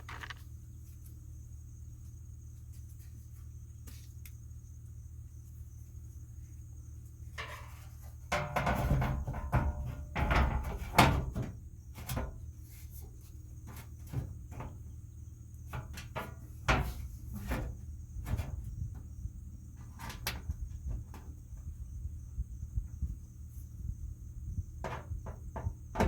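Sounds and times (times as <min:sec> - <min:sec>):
metal parts and tools clattering: 0:00.0 - 0:00.4
steady low hum: 0:00.0 - 0:26.0.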